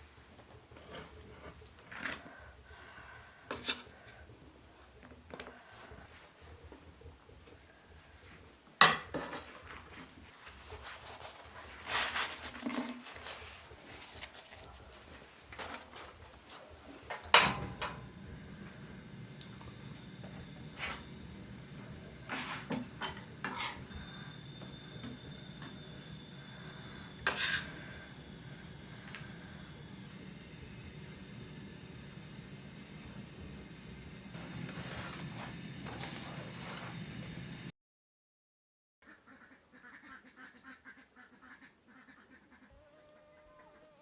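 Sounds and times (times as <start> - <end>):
kitchenware clatter: 8.8 - 9.5
kitchenware clinking and scraping: 8.8 - 10.1, 22.2 - 23.9.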